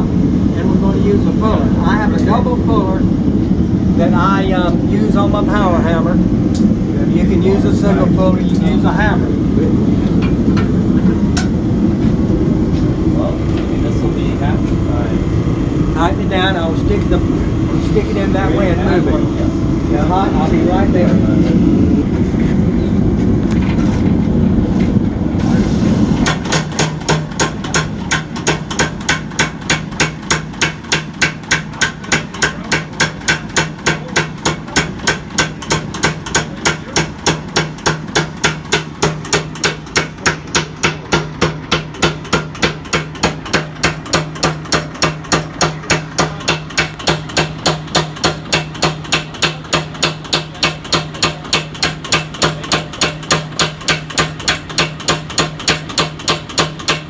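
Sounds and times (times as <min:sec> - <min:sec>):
low motor hum: 0:00.0 - 0:57.0
power hammer striking hot steel: 0:10.2 - 0:11.6, 0:25.4 - 0:57.0.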